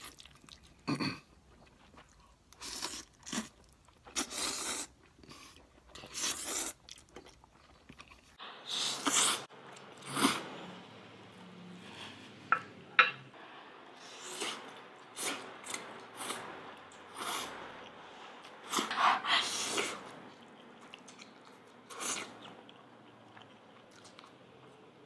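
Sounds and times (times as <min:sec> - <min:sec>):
person slurping noodles: 0:08.6 - 0:10.6.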